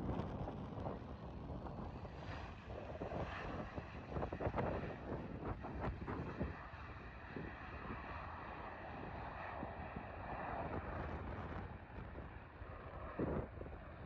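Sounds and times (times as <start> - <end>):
distant jet engines rushing: 0.0 - 14.0
wind buffeting microphone: 0.0 - 14.0.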